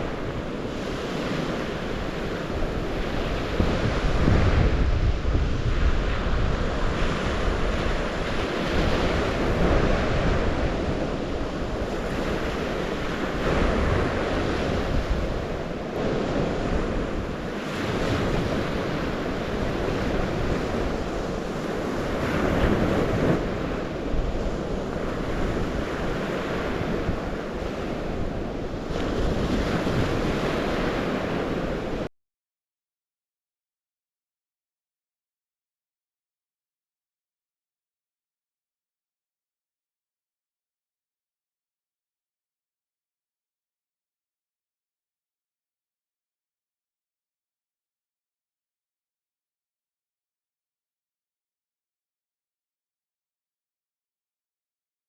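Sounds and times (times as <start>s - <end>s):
wind rumbling on microphone: 0.0s - 32.1s.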